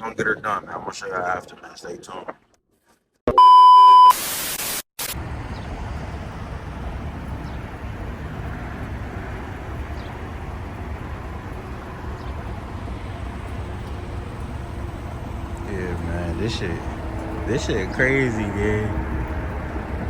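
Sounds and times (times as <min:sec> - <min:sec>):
motor vehicle rumble: 0:05.2 - 0:20.0.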